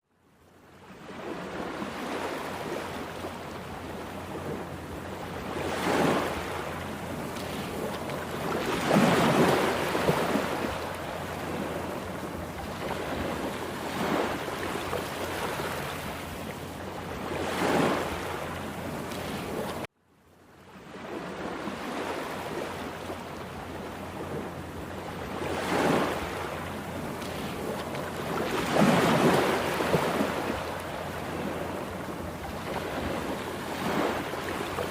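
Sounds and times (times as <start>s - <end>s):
waves surging: 1.0s - 19.9s, 20.9s - 34.9s.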